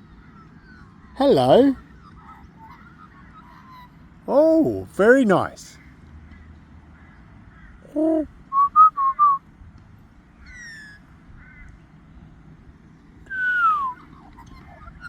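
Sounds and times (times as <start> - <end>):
magpie whistling calls: 10.4 - 11.0.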